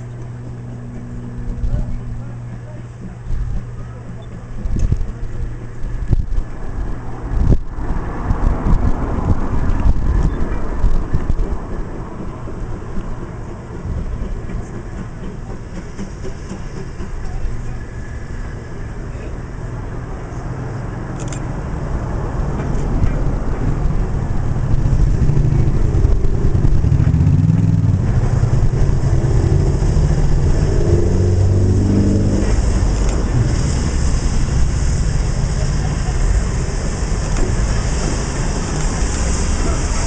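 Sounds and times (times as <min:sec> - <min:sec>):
diesel train engine running: 0:00.0 - 0:40.0.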